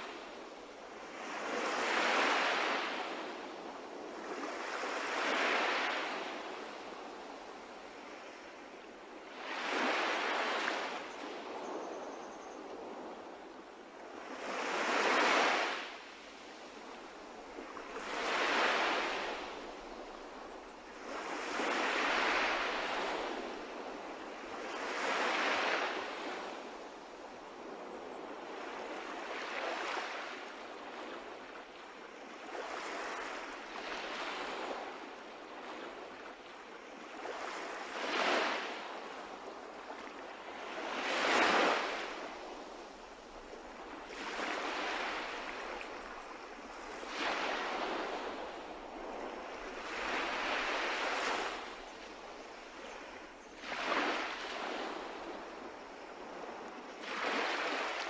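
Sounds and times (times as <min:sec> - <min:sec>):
sea waves washing: 0:40.8 - 0:58.0.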